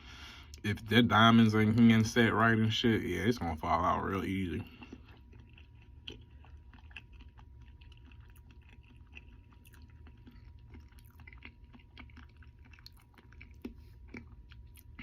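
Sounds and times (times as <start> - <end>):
steady low hum: 0.0 - 15.0
person chewing: 3.4 - 15.0.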